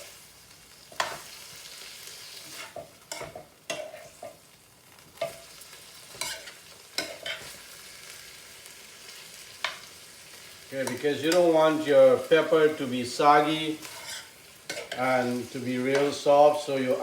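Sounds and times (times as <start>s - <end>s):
food sizzling in a pan: 0.0s - 17.0s
utensil scraping and striking pan: 13.8s - 15.1s.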